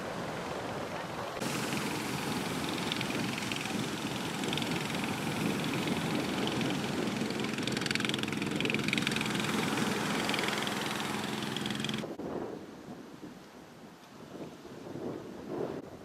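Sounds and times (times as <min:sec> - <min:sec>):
engine running with low hum: 0:00.0 - 0:12.1.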